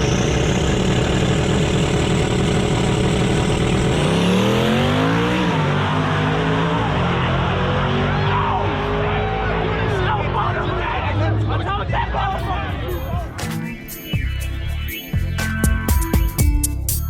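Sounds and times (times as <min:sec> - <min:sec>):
high steady whine: 0:00.0 - 0:06.0
car engine revving: 0:00.0 - 0:14.6.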